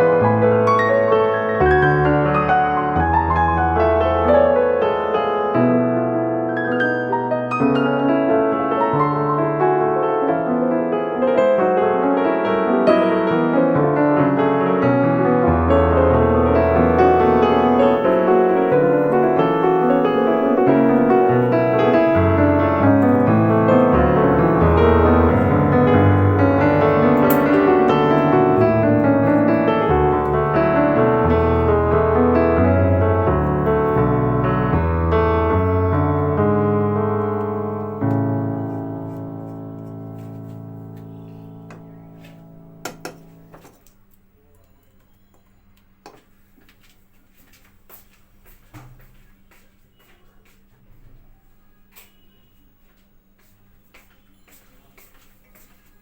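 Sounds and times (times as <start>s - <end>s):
piano music: 0.0s - 44.1s.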